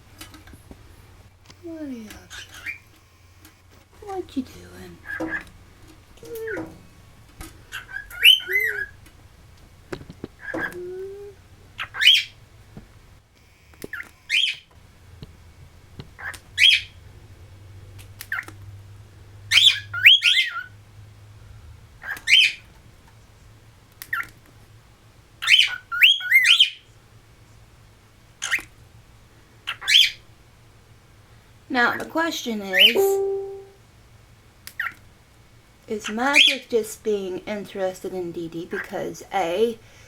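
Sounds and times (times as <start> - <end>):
cockatiel call notes: 7.7 - 9.0, 19.5 - 20.7.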